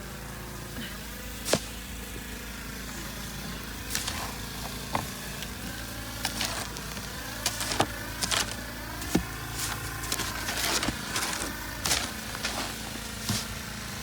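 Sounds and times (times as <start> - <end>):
engine running steadily: 0.0 - 14.0
sharp scraping knocks: 6.2 - 13.8.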